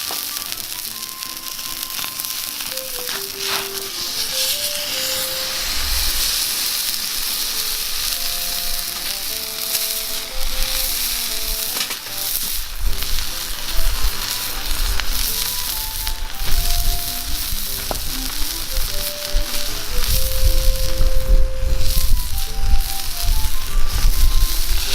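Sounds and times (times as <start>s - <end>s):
fat popping: 0.0s - 24.9s
simple background music melody: 0.0s - 24.9s
steak sizzling in a frying pan: 0.0s - 24.9s
low rumbling: 12.4s - 24.9s.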